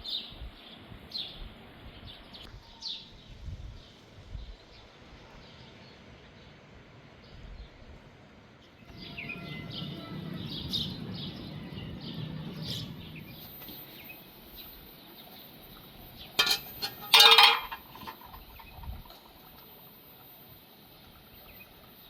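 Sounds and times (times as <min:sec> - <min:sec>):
pots and dishes clattering: 0:16.4 - 0:18.4.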